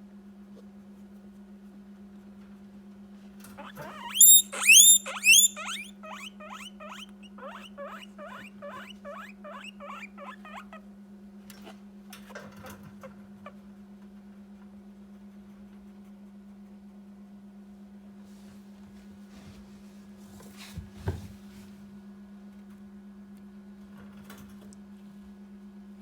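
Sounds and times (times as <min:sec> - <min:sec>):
guinea pig squealing: 0:03.5 - 0:10.8.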